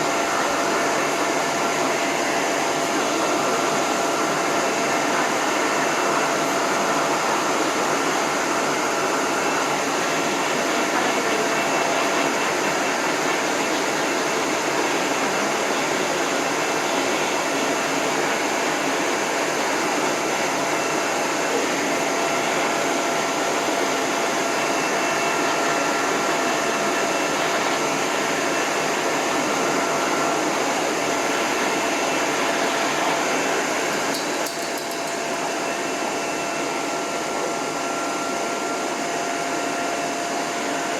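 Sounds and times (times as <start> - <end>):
hose dryer blowing air: 0.0 - 40.9.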